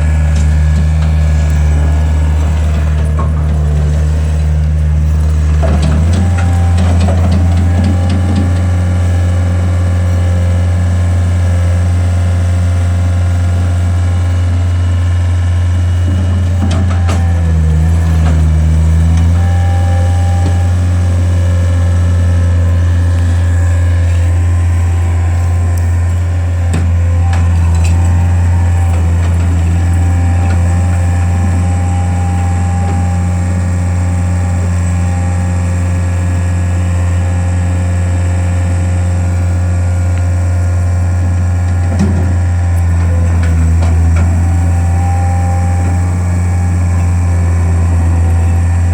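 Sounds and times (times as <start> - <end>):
skid steer engine humming: 0.0 - 48.9.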